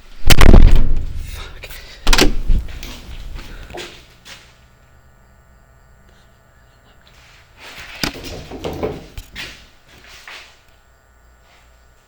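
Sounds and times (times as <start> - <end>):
door slamming: 2.1 - 2.8.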